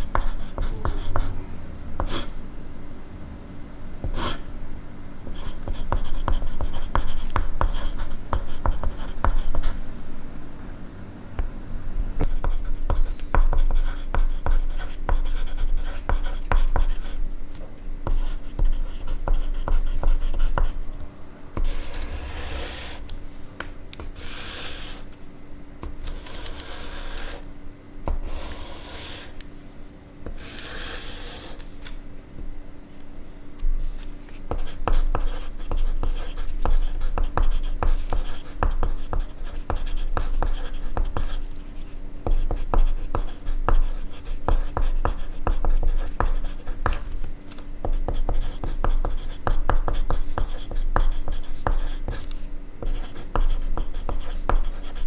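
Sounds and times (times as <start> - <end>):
pencil writing on paper: 0.0 - 1.3, 2.0 - 2.4, 4.0 - 4.4, 5.3 - 9.8, 12.2 - 17.2, 18.1 - 20.8, 21.6 - 23.0, 24.0 - 25.1, 25.8 - 27.4, 28.1 - 29.4, 30.3 - 31.7, 33.9 - 47.2, 47.8 - 55.0
eraser rubbing on paper: 21.6 - 23.0, 24.0 - 25.1, 26.0 - 27.4, 28.2 - 29.4, 30.3 - 31.7.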